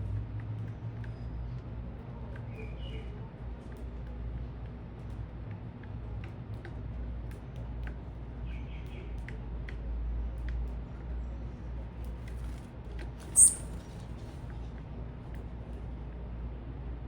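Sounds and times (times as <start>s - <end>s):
small birds ticking and calling: 13.2s - 13.8s
sharp high bird chirp: 13.3s - 13.8s.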